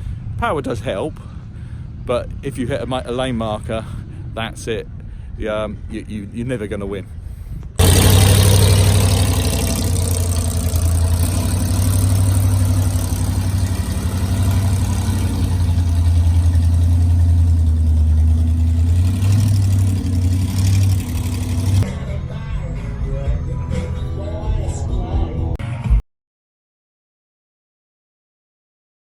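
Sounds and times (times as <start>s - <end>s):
monster truck engine idling: 7.8s - 21.9s.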